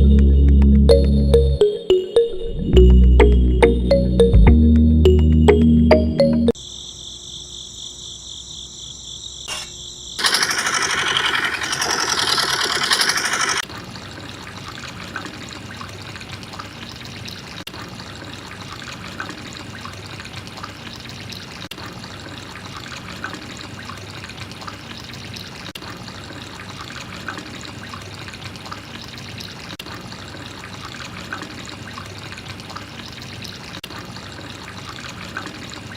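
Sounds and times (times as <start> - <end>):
small water splashes: 10.2 - 35.9
water pouring and trickling: 10.2 - 35.9.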